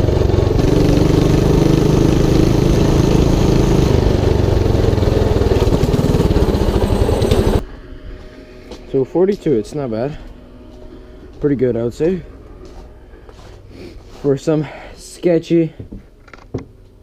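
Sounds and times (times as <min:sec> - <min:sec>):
mini bike engine running: 0:00.0 - 0:07.6.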